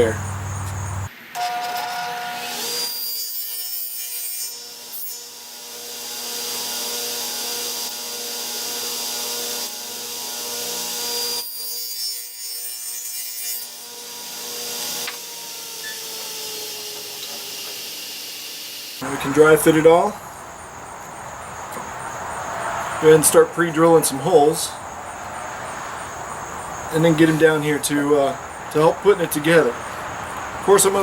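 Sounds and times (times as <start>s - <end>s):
electric power saw cutting wood: 0.7s - 20.1s
saw motor winding down: 13.6s - 20.1s.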